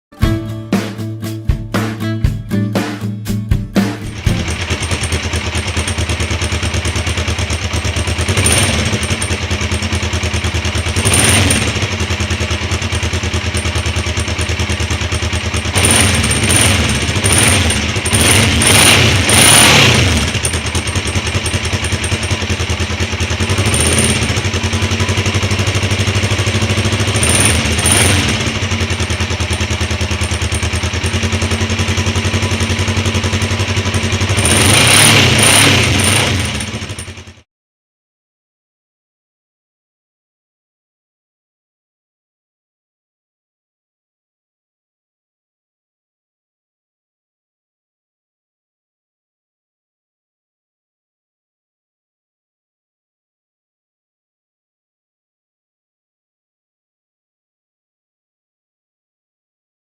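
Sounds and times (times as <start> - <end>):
motorcycle engine idling: 3.9 - 37.4
motorcycle throttle revs: 4.0 - 37.4.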